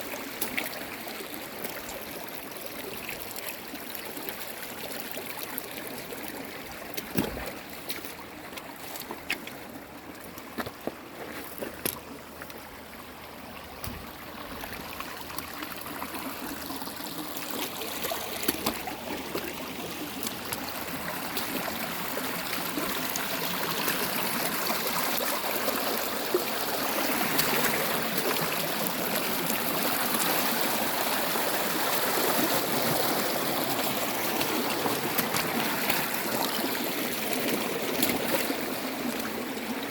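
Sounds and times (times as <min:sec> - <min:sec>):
stream water trickling over stones: 0:00.0 - 0:39.9
water drips and plinks: 0:13.7 - 0:25.8, 0:26.4 - 0:30.3, 0:33.6 - 0:38.7.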